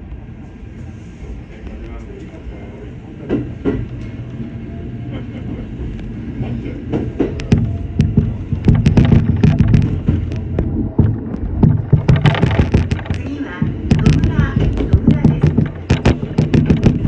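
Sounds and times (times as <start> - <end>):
electric train rumbling: 0.0 - 17.0
wheels clicking over rail joints: 6.8 - 17.0.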